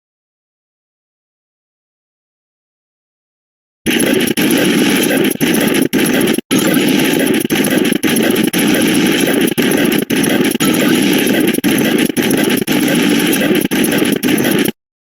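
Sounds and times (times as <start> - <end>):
harsh buzzing electronic sound: 3.9 - 14.8.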